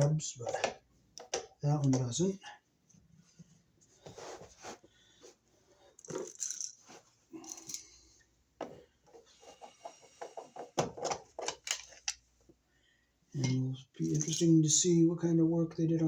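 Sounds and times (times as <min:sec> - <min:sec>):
clicks and knocks of tools: 0:10.2 - 0:12.2.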